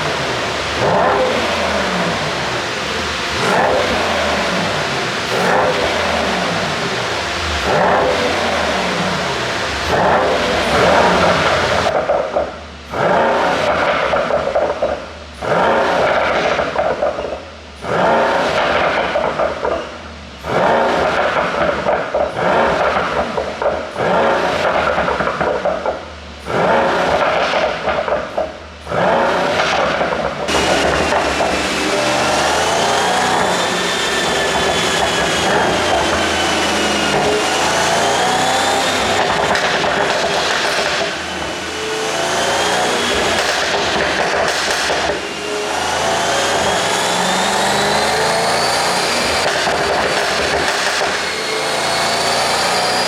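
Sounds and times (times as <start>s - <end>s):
car engine revving: 0.0s - 53.0s
exhaust pops and crackles: 20.5s - 41.8s, 42.6s - 45.3s, 49.2s - 51.2s.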